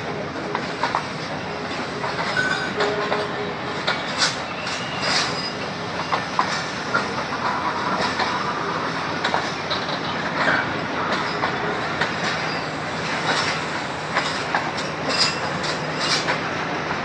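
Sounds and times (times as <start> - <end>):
train wheels clacking over rail joints: 0.1 - 17.0
wheels squealing: 4.0 - 6.5.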